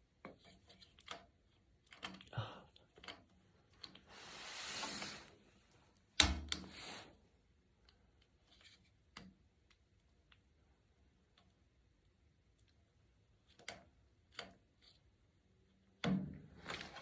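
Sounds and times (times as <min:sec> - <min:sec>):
brief scrape: 0:04.1 - 0:05.4.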